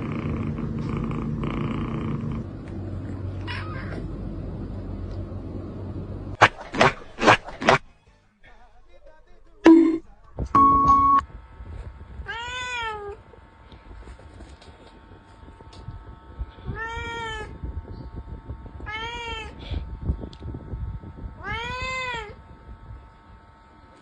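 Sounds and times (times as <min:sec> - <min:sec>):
cat meowing: 0:03.4 - 0:04.0, 0:12.3 - 0:13.2.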